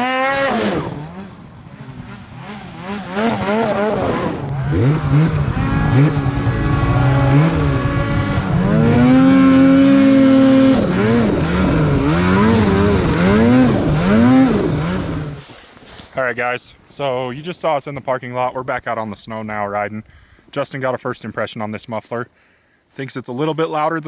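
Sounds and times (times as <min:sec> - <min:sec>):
snowmobile engine revving: 0:00.0 - 0:16.1.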